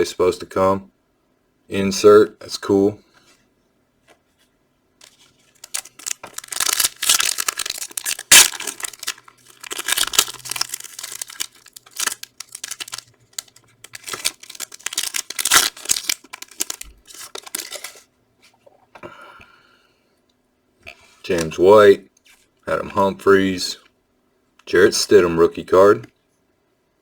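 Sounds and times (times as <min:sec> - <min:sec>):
foil wrapper tearing and crinkling: 0:05.0 - 0:18.1.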